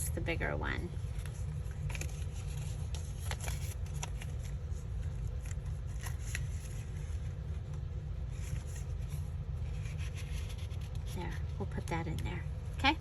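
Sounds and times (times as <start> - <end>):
paper rustling: 1.1 - 11.4.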